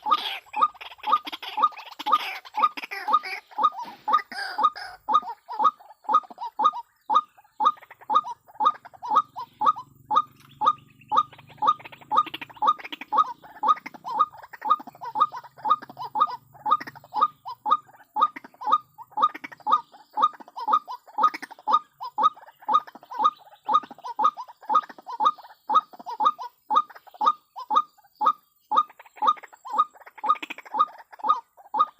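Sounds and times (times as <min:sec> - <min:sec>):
waterhen calling harsh notes: 0:00.0 - 0:31.9.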